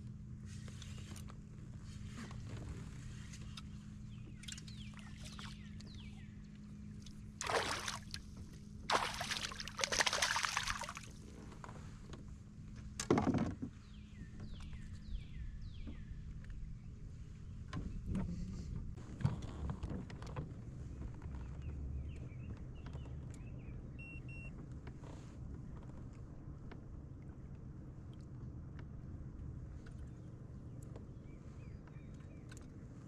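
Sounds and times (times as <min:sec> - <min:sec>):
low hum: 0:00.0 - 0:13.0
water splashing at a kayak: 0:04.4 - 0:06.0, 0:07.0 - 0:11.4.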